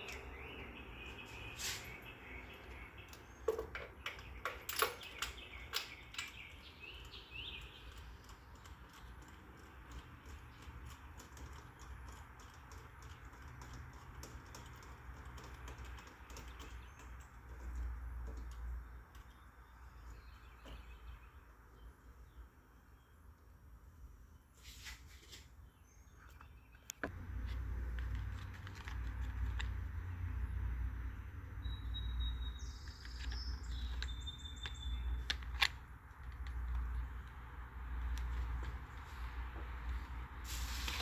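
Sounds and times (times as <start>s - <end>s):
birds chirping: 0.0s - 24.5s, 25.6s - 40.8s
sharp clicks and taps: 32.8s - 38.8s.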